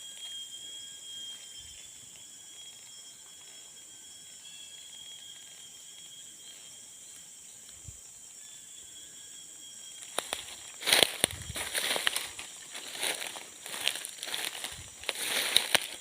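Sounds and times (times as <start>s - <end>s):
rustling handling noise: 10.1s - 16.0s.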